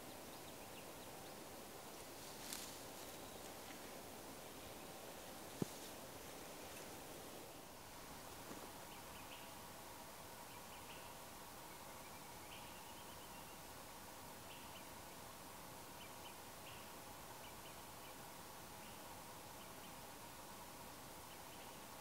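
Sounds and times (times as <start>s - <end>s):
distant bird chirping: 0.0s - 7.7s, 8.4s - 9.7s, 10.4s - 13.8s, 14.4s - 15.2s
quiet outdoor hiss: 0.0s - 22.0s.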